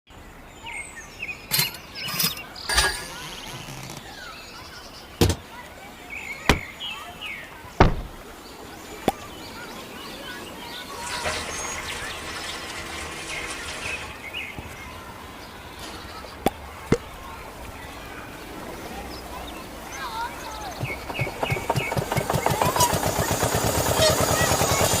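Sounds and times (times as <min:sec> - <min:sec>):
sharp knocks: 0:05.2 - 0:05.5, 0:06.5 - 0:06.8, 0:07.8 - 0:08.2.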